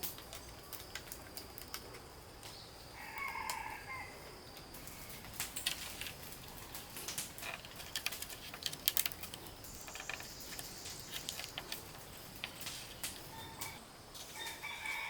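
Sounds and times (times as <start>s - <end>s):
light clicks and taps: 5.3s - 13.8s.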